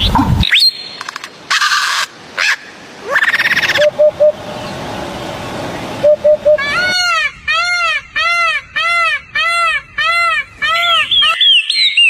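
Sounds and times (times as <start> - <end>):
bird calling with clear tones: 0.0 - 12.0
bird chirping quickly: 11.0 - 12.0.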